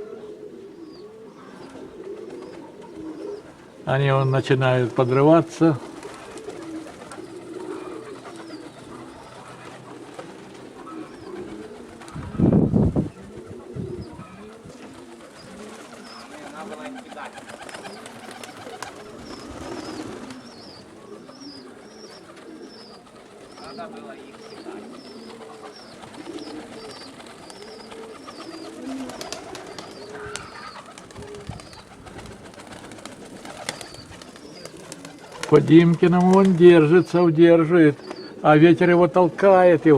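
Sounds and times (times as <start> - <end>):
pigeons cooing: 0.0 - 39.9
wind buffeting microphone: 11.3 - 14.8, 31.1 - 34.2.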